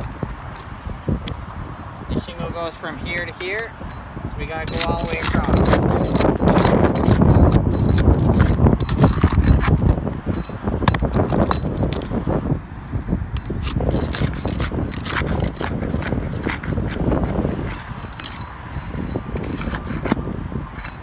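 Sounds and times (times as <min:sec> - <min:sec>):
wind buffeting microphone: 0:00.0 - 0:21.0
pry bar clicking and scraping: 0:03.2 - 0:12.3, 0:13.3 - 0:21.0.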